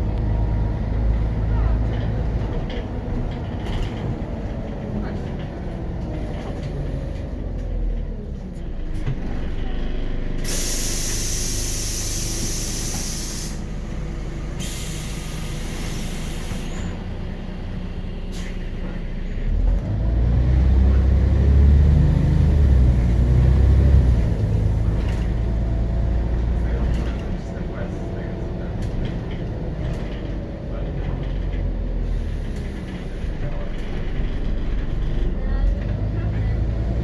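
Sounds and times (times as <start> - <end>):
bus diesel engine: 0.0 - 37.0
air brake hissing: 10.4 - 13.8, 14.5 - 17.0, 18.3 - 18.7, 32.0 - 33.3.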